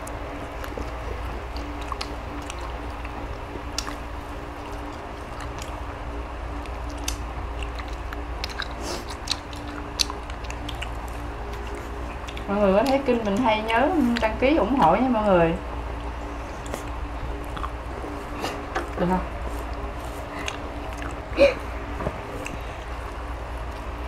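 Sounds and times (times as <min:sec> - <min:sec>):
people chewing and biting: 0:00.0 - 0:14.8, 0:15.8 - 0:24.0
steady low hum: 0:00.0 - 0:24.0.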